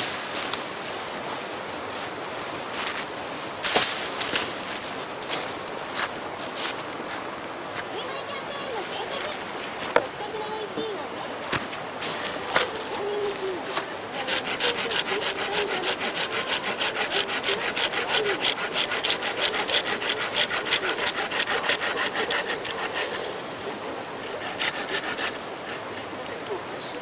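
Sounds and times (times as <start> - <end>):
hand saw cutting wood: 12.1 - 23.3, 24.2 - 25.9.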